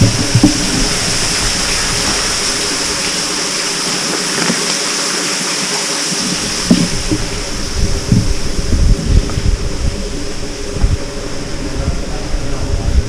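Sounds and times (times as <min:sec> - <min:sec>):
dull low knocks: 0:00.0 - 0:03.4, 0:06.4 - 0:12.1
water running and dripping: 0:00.0 - 0:13.0.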